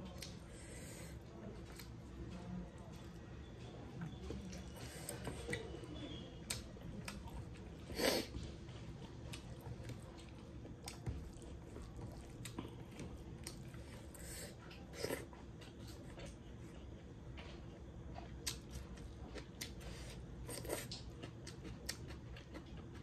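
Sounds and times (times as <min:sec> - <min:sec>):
chewing with wet clicks: 0:00.0 - 0:00.4, 0:01.5 - 0:23.0.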